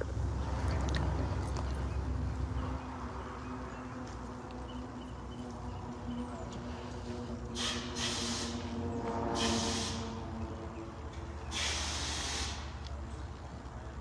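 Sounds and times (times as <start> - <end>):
short hissing bursts: 7.6 - 8.7, 9.4 - 10.2, 11.5 - 12.8.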